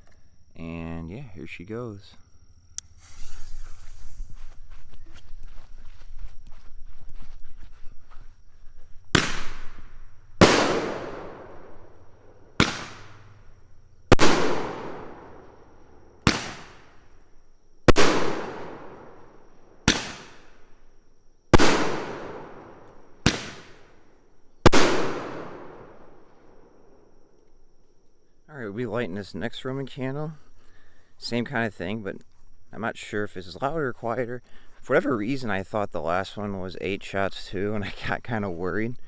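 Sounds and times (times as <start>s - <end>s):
roman candle launch pops: 9.1s - 11.6s, 12.6s - 13.3s, 16.2s - 17.0s, 19.9s - 20.5s, 23.3s - 23.8s
firework bangs with echo: 9.1s - 13.3s, 14.1s - 15.4s, 16.2s - 17.0s, 17.9s - 19.2s, 19.8s - 20.6s, 21.6s - 23.8s, 24.7s - 26.0s.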